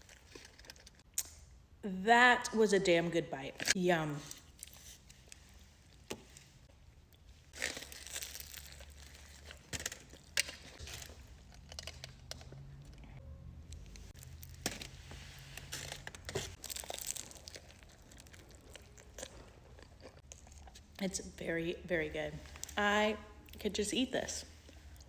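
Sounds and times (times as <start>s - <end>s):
foil wrapper crinkling and tearing: 7.5s - 12.5s, 13.9s - 20.5s.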